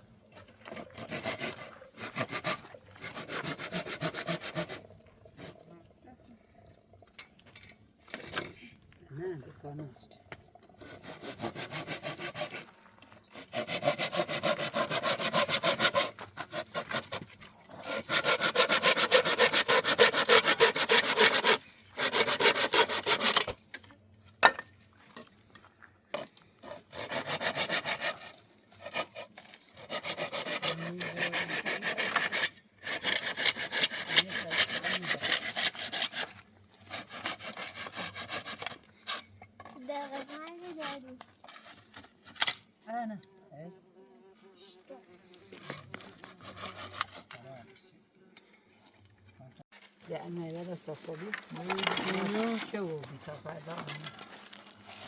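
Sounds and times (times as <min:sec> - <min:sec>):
hand saw cutting wood: 0:00.4 - 0:05.6, 0:10.8 - 0:23.6, 0:26.2 - 0:42.6, 0:45.5 - 0:47.7, 0:51.5 - 0:55.0.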